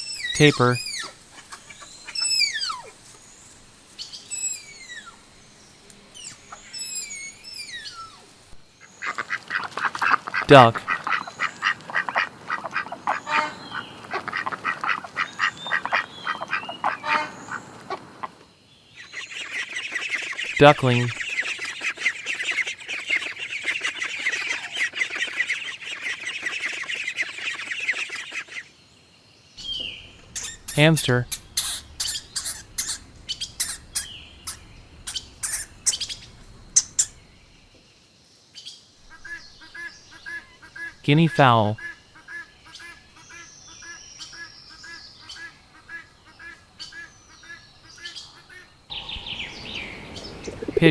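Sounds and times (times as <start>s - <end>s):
ducks quacking: 8.9s - 18.3s, 29.6s - 37.5s
hamster squeaking: 29.6s - 37.2s.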